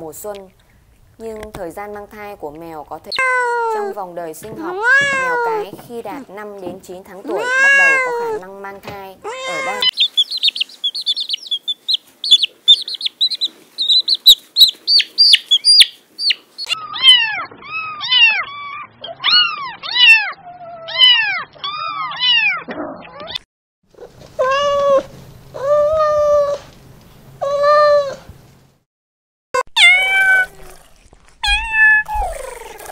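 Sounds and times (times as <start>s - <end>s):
kittens mewing: 3.1s - 4.0s, 7.3s - 8.5s, 9.2s - 10.0s, 16.6s - 23.4s, 29.6s - 32.9s
chicks peeping: 9.6s - 16.8s.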